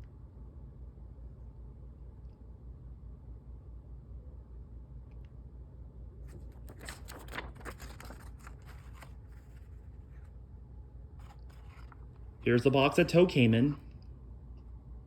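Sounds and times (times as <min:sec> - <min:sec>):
low steady hum: 0:00.0 - 0:15.0
packaging rustles and clicks: 0:06.3 - 0:10.2.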